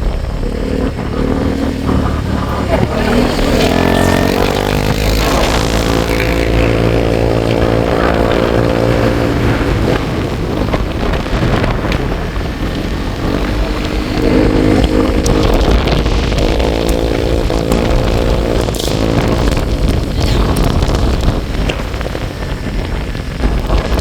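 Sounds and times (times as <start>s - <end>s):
vehicle engine running: 0.0s - 24.0s
wind on microphone: 0.0s - 24.0s.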